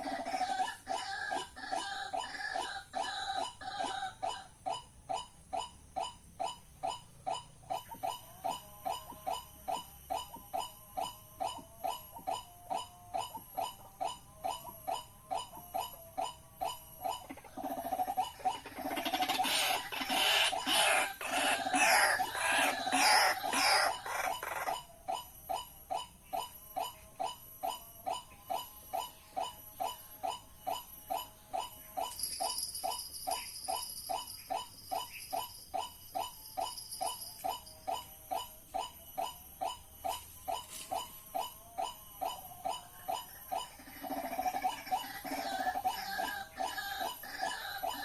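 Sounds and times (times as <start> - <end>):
waterhens croaking: 0.0 - 5.2, 16.7 - 25.2, 39.7 - 48.0.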